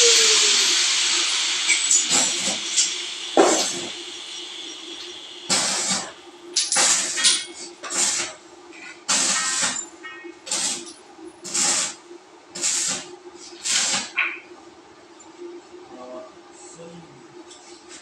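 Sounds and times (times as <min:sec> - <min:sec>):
pump motor humming: 0:00.0 - 0:06.6
power sprayer hissing bursts: 0:00.0 - 0:07.1.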